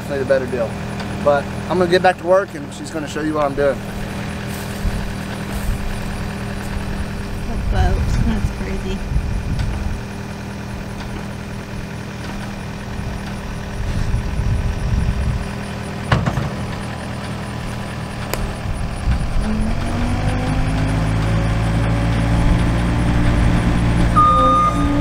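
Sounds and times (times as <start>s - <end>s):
diesel engine running: 0.0s - 25.0s
sharp knocks: 16.0s - 16.8s.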